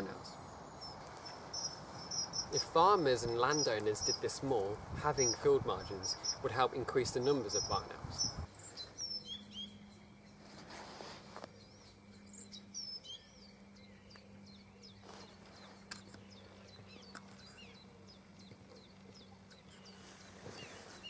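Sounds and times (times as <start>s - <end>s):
small birds chirping: 0.0s - 10.6s, 11.2s - 21.0s
steady low hum: 0.0s - 21.0s.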